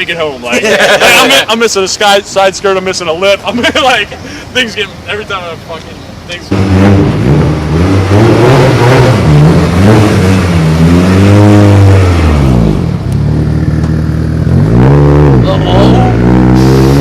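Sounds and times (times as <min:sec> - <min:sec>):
car engine revving: 0:06.5 - 0:17.0.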